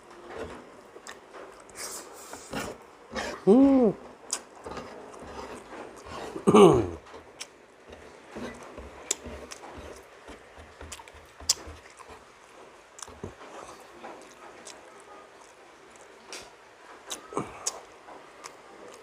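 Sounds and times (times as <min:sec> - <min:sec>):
chewing soft fish: 0:07.0 - 0:16.2.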